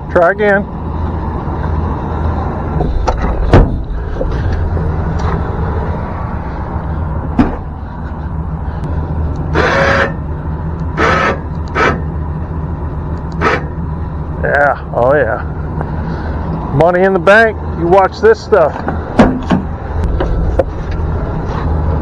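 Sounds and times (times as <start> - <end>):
truck engine running: 0.0 - 22.0
sharp clunk: 2.8 - 4.6, 7.3 - 7.7, 18.8 - 20.7
scraping bursts: 7.6 - 12.3, 13.3 - 13.9.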